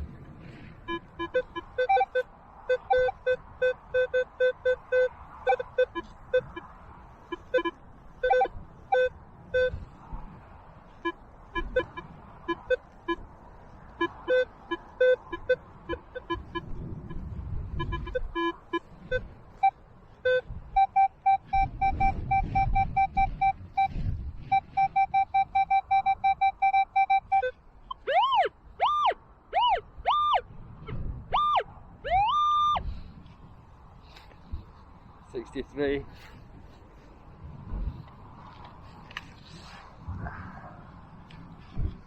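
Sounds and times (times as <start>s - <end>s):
wind rumble on microphone: 0.0s - 42.0s
metal detector beeps: 0.8s - 9.8s, 11.0s - 13.2s, 14.0s - 30.4s, 31.3s - 32.8s.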